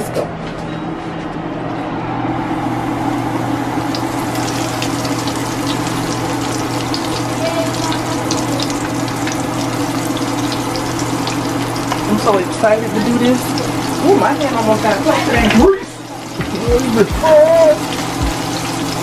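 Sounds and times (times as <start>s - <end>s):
food deep-frying in oil: 3.0s - 19.0s
oil crackling and popping: 3.9s - 14.4s.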